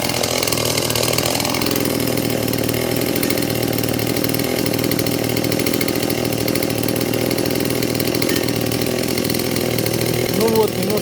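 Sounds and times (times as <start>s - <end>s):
chainsaw engine running: 0.0s - 11.0s.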